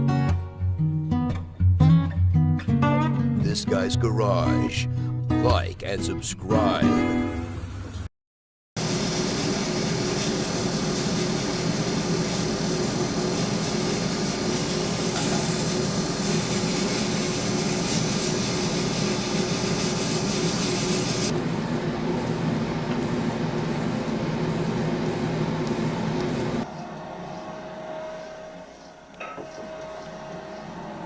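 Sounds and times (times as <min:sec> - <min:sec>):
lathe motor humming: 0:08.8 - 0:31.0.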